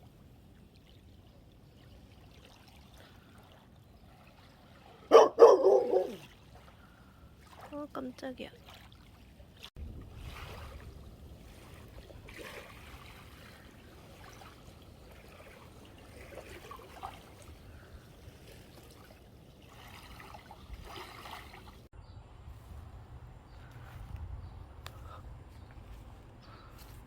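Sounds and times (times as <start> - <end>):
water splashing and trickling: 0.0 - 22.8
wind on microphone: 9.8 - 14.7, 22.0 - 27.0.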